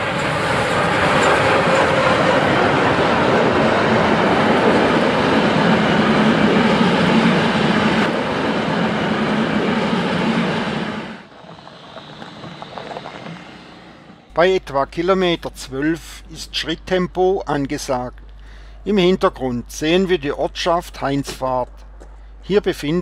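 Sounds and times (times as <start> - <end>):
train wheels rumbling and rattling: 0.0 - 22.5
distant train: 0.0 - 23.0.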